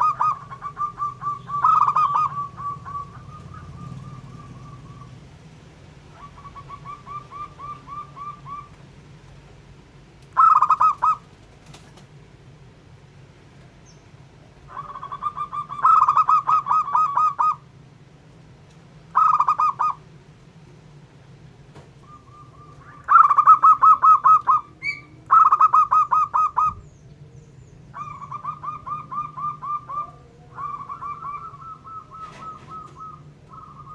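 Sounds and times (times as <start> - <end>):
doves cooing rattling notes: 0.0 - 33.9.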